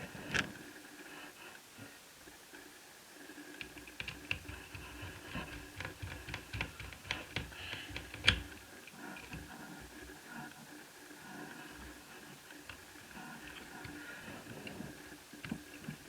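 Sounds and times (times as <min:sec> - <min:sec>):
screwdriver clicking and scraping: 0:03.6 - 0:08.6.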